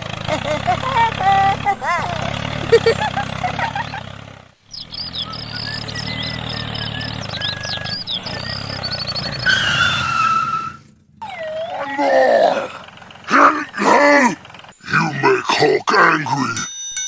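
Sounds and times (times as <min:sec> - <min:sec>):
mini tractor engine running: 0:00.0 - 0:15.5
rapid high chirps: 0:04.6 - 0:10.0
wavering pitched call: 0:04.7 - 0:12.8
falling tone: 0:05.2 - 0:13.0.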